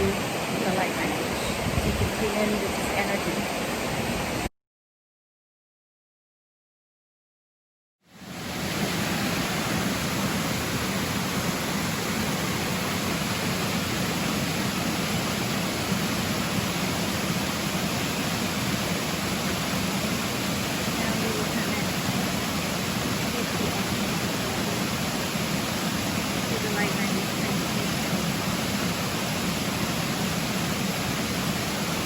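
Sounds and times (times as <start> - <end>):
rocky stream rushing: 8.2 - 32.0.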